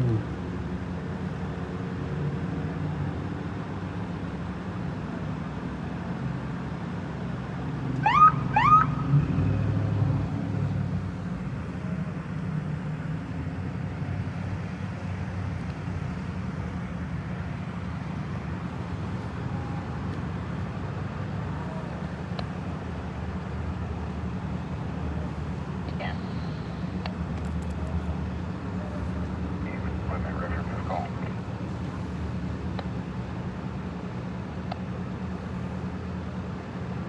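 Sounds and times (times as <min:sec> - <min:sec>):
vehicle engines idling: 0:00.0 - 0:37.0
emergency siren whoops: 0:08.0 - 0:09.2.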